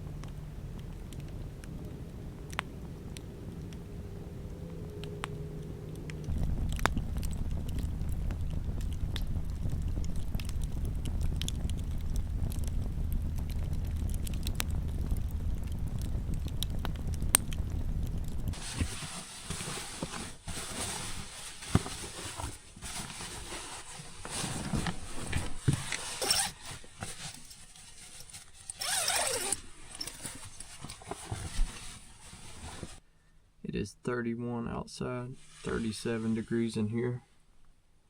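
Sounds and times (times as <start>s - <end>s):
wind rumbling on microphone: 0.0s - 27.3s
campfire crackling and popping: 0.0s - 30.5s
gear rustling and knocking: 6.0s - 33.0s.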